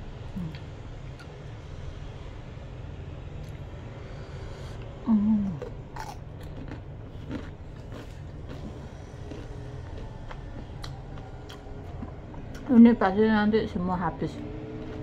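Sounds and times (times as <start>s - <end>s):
low background hum: 0.0s - 15.0s
chewing crispy chicken skin: 5.6s - 12.7s, 14.8s - 15.0s.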